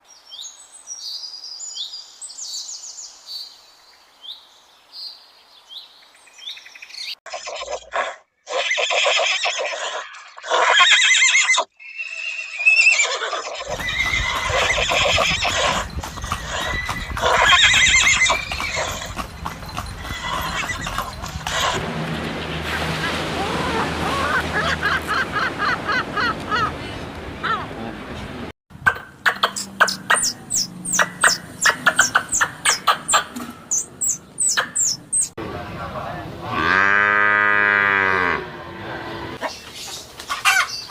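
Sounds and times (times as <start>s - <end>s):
horses whinnying: 7.3s - 21.8s
high chirping calls: 28.8s - 35.4s.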